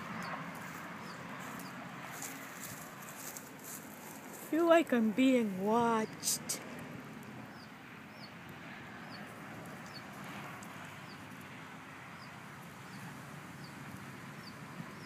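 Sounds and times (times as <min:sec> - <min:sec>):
small bird chirping: 0:07.5 - 0:08.4, 0:09.0 - 0:10.1.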